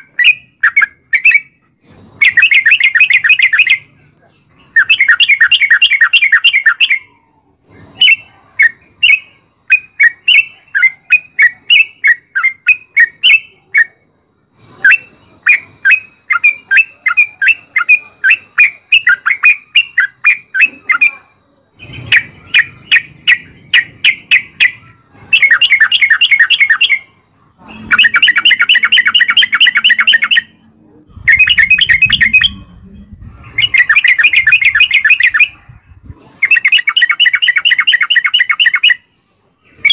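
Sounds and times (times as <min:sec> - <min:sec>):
bulbul singing: 0:00.0 - 0:04.0, 0:04.6 - 0:07.2, 0:08.0 - 0:14.0, 0:14.9 - 0:21.2, 0:21.8 - 0:35.7, 0:36.4 - 0:39.9.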